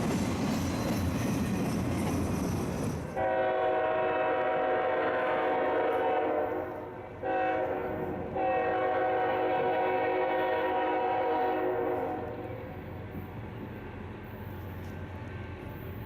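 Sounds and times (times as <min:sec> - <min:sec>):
locomotive air horn blasts: 0:03.2 - 0:12.7.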